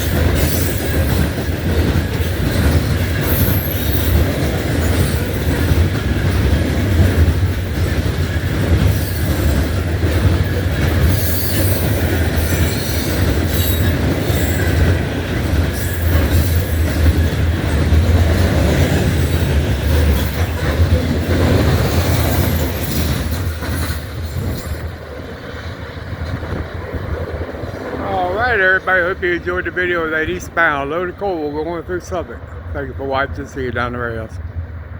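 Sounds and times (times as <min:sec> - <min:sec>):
train wheel squeal: 0:00.0 - 0:25.4
train wheel clacks: 0:00.0 - 0:34.2
freight train rumbling past: 0:00.0 - 0:34.9.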